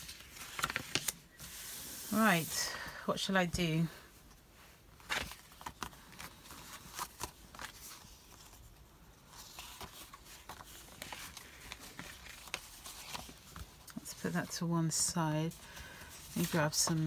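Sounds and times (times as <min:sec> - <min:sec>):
paper rustling: 0:00.0 - 0:02.5, 0:05.0 - 0:14.6, 0:15.5 - 0:17.0.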